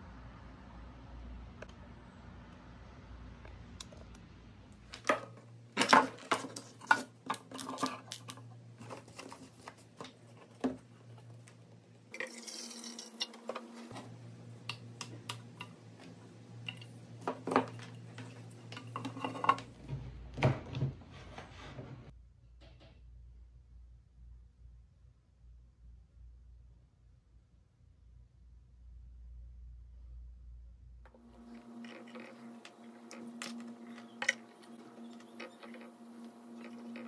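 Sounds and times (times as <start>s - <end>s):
plastic parts clacking: 4.8s - 11.5s.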